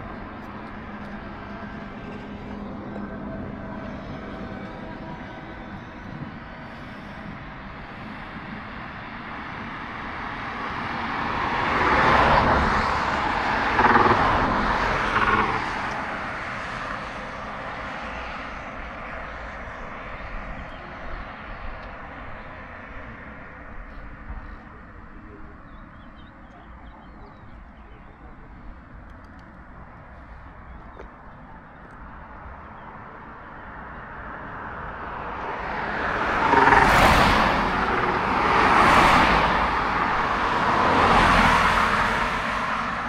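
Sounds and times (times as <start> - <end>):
vehicle passing by: 10.8 - 18.6, 34.0 - 43.0.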